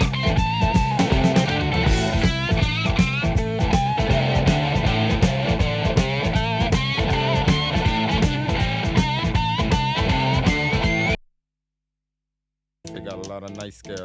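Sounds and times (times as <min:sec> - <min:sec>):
bass line: 0:00.0 - 0:11.2
drum beat: 0:00.0 - 0:11.2, 0:12.9 - 0:14.0
electric guitar lead lines: 0:00.0 - 0:11.2.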